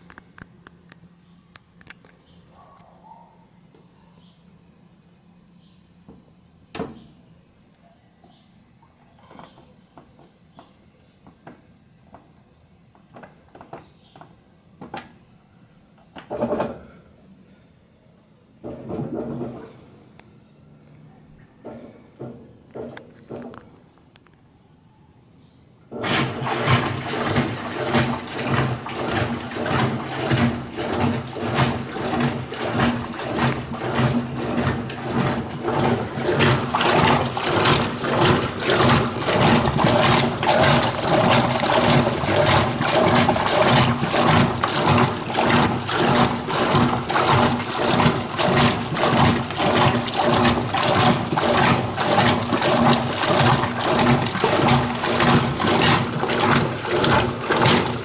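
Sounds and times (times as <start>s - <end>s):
water splashing in washing machine: 18.6s - 19.8s, 25.9s - 58.0s
electrical hum: 25.9s - 58.0s.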